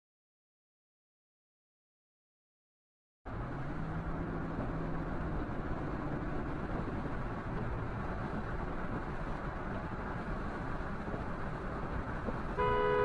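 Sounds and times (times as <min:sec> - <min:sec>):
car engine and road noise: 0:03.3 - 0:13.0.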